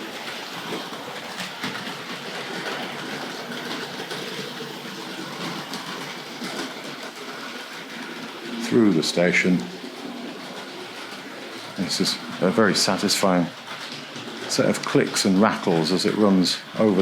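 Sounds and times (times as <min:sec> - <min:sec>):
model train running on track: 0:00.0 - 0:17.0
wheels clicking over rails: 0:00.0 - 0:17.0.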